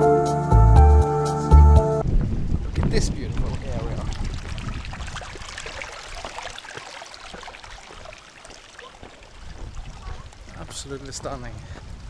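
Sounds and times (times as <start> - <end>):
seawater washing among rocks: 2.3 - 11.5.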